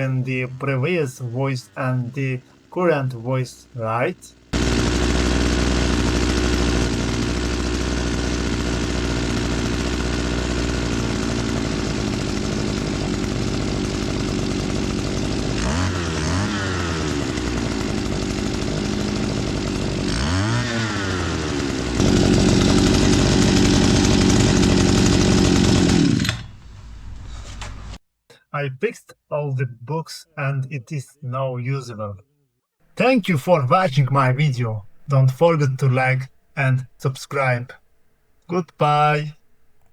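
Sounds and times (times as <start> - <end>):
brushcutter engine revving: 1.7 - 26.4.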